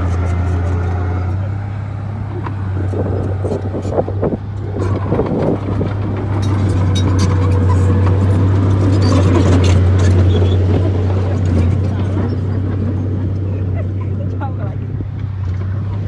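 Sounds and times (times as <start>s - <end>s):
bulldozer diesel engine droning: 0.0s - 16.0s
clicks and clanks: 4.6s - 12.9s.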